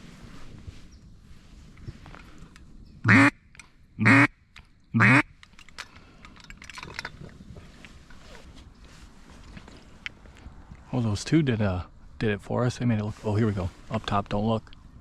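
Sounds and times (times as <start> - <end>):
duck call quacks: 3.1 - 3.4, 4.0 - 4.3, 5.0 - 5.3.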